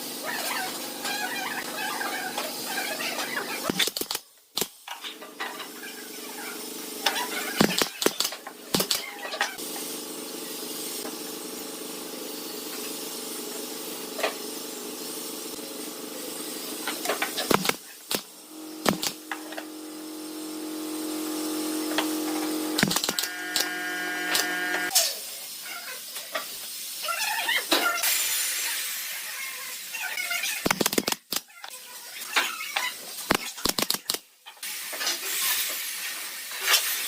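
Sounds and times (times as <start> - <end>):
machine motor humming: 18.5 - 24.9.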